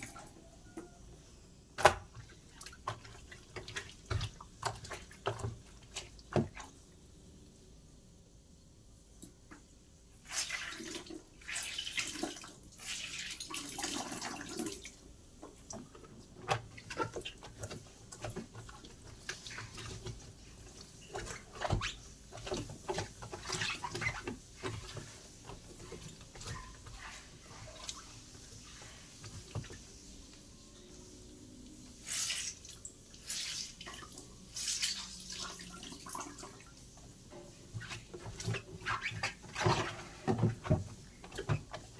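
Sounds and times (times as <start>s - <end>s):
water splashing and pouring: 10.2s - 15.0s, 31.9s - 36.9s.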